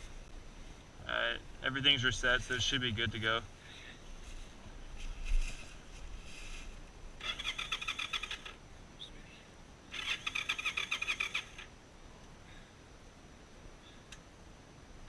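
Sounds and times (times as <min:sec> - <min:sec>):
motorcycle starter cranking engine: 0:07.2 - 0:08.5, 0:09.9 - 0:11.7.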